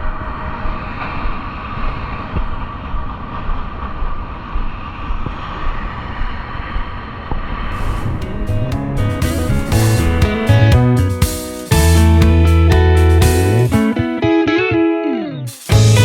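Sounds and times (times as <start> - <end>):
bicycle riding rumble: 0.0 - 10.7
wind buffeting microphone: 0.0 - 10.8.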